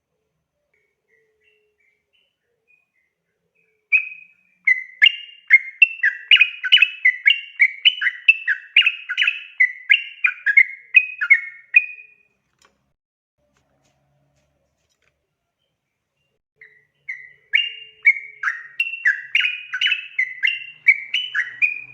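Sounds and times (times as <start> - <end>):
bulbul singing chirpy notes: 0.8 - 12.2, 16.6 - 21.9.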